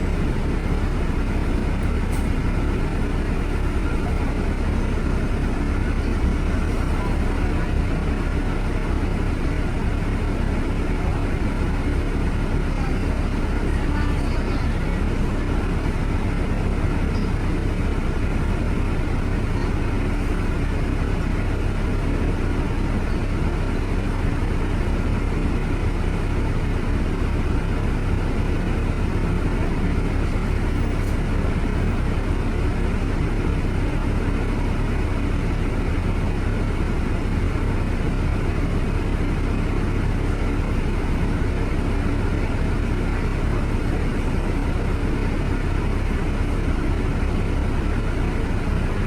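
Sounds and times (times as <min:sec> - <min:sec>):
road noise: 0:00.0 - 0:49.0
vehicle driving rumble: 0:00.0 - 0:49.0.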